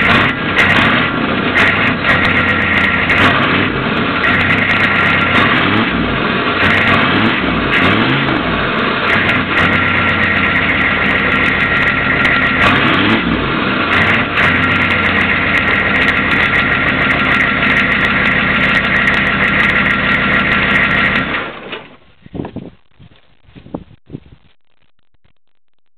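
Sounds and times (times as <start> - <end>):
diesel engine revving: 0.0 - 21.7.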